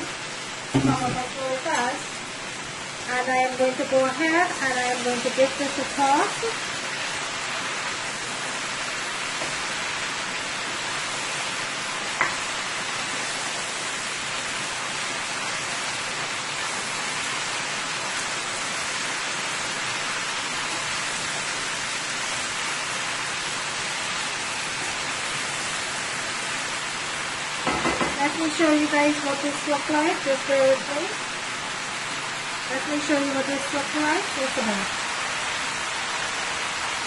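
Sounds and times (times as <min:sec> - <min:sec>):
food sizzling in a pot: 0:00.0 - 0:37.0
spatula knocking on pot: 0:00.8 - 0:01.2, 0:27.6 - 0:28.2.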